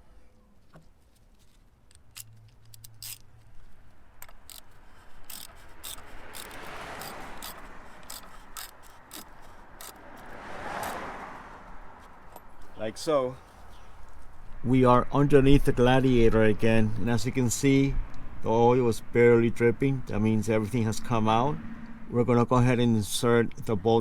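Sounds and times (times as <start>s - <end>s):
cap scraping and rubbing: 4.4s - 10.0s.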